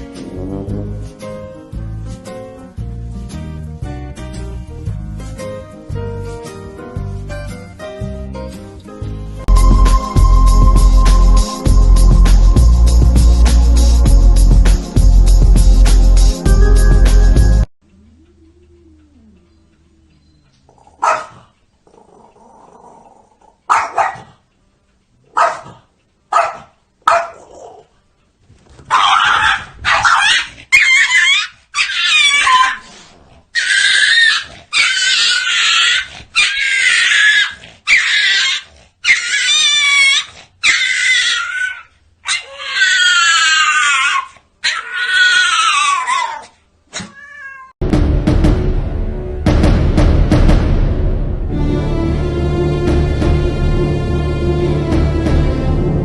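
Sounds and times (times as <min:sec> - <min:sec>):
music: 0:00.0 - 0:17.7, 0:47.8 - 0:56.0
cat meowing and yowling: 0:33.6 - 0:47.8.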